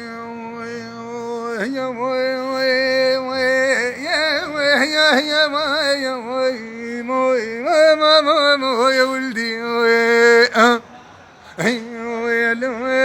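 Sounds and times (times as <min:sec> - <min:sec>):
man singing folk song: 0:00.0 - 0:10.8, 0:11.5 - 0:13.0.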